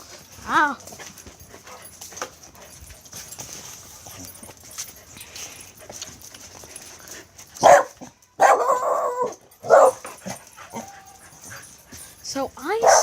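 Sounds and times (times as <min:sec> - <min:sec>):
dog barking: 0:07.6 - 0:10.1, 0:12.8 - 0:13.0.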